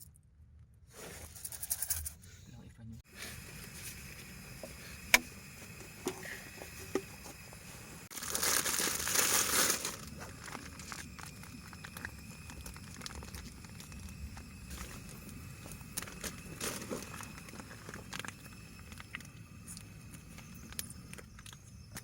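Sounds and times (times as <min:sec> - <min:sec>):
crinkling and rustling: 0:08.1 - 0:22.0
steady low rumble: 0:09.0 - 0:22.0.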